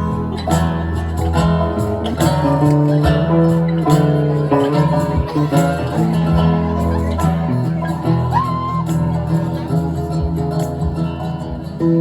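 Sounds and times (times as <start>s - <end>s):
strummed guitar chords: 0.0s - 12.0s.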